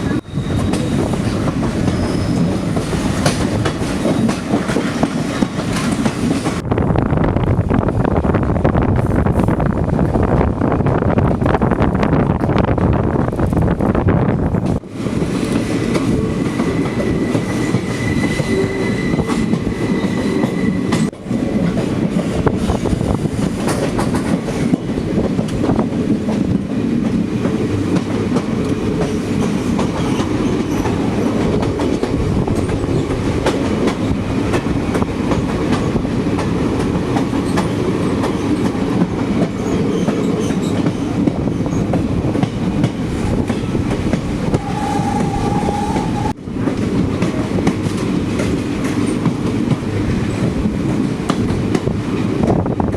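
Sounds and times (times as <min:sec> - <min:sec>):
train wheels clattering on track: 0:00.0 - 0:06.6, 0:14.5 - 0:52.9
train rumble: 0:00.0 - 0:52.9
high-pitched wheel squeal: 0:00.1 - 0:02.6, 0:16.6 - 0:21.1, 0:44.5 - 0:46.3.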